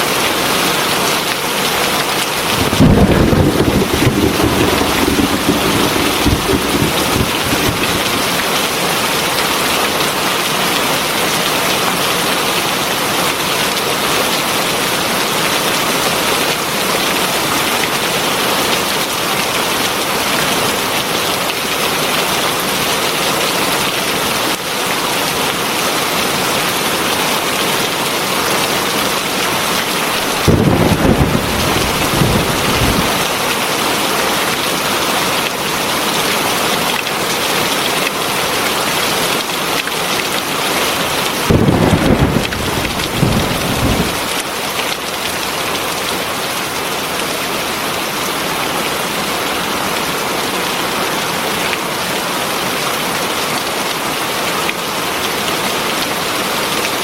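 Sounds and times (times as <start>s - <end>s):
heavy rain hiss: 2.3s - 8.8s
thunder rumble: 2.4s - 8.8s, 30.2s - 33.3s, 41.4s - 44.4s.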